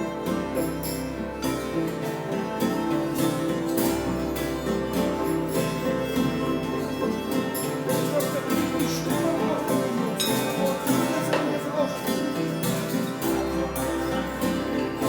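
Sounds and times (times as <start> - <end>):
plucked strings: 0.0 - 15.0.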